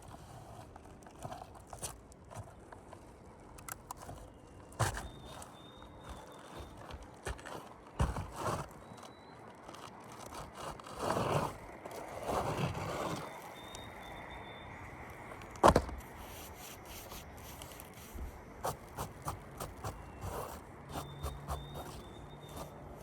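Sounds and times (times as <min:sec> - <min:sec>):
scraping on roof shingles: 0:04.0 - 0:14.0, 0:15.4 - 0:23.0.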